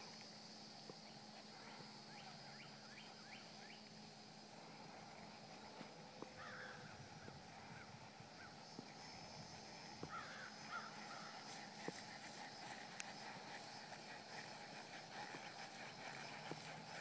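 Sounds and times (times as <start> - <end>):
bird calling: 6.3 - 17.0.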